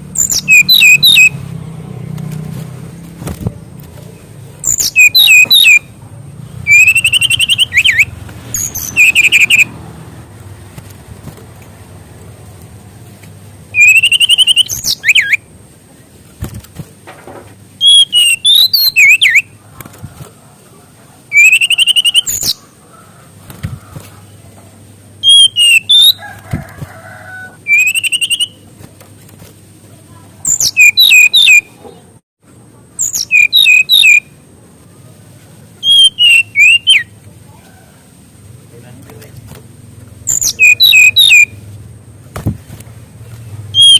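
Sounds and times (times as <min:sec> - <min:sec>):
bird song with whistles and warbles: 0:00.1 - 0:01.4, 0:04.6 - 0:05.9, 0:06.7 - 0:09.7, 0:13.7 - 0:15.5, 0:17.8 - 0:19.6, 0:21.3 - 0:22.7, 0:25.2 - 0:26.2, 0:27.6 - 0:28.6, 0:30.4 - 0:31.8, 0:33.0 - 0:34.4, 0:35.8 - 0:37.1, 0:40.2 - 0:41.6.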